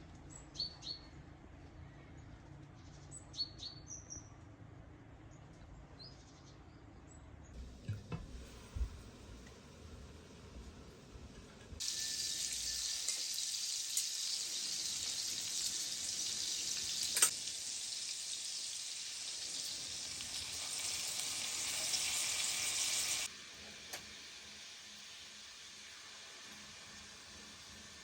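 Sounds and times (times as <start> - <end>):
food sizzling in a pan: 7.6 - 28.0.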